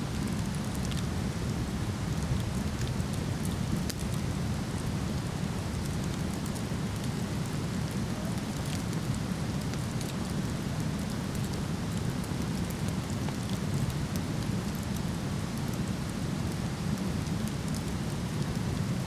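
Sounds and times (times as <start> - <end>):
wood fire crackling: 0.1 - 19.0.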